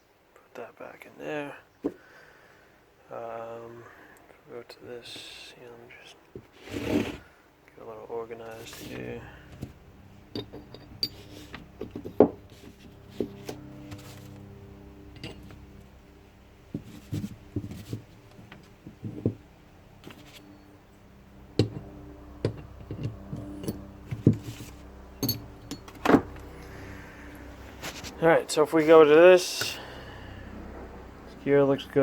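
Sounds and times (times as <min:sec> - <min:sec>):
steady low hum: 0:07.2 - 0:32.0
metal parts knocking and clinking: 0:08.6 - 0:14.4, 0:15.1 - 0:15.8, 0:21.6 - 0:26.5.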